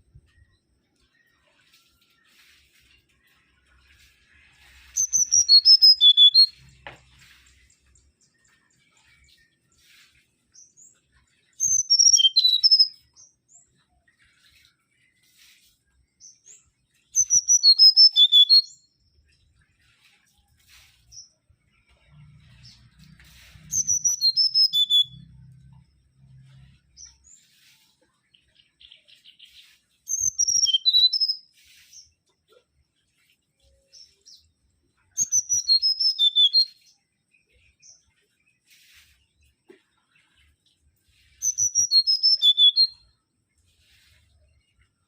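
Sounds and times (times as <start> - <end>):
bird whistling song: 4.8 - 6.8, 11.5 - 13.8, 16.4 - 19.0, 23.2 - 25.5, 28.4 - 32.0, 35.1 - 37.0, 41.4 - 43.2.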